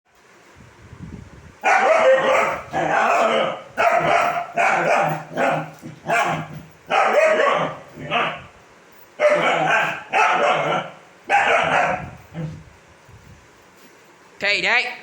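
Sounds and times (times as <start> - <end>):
puppy barking loudly: 1.6 - 8.5, 9.2 - 12.6.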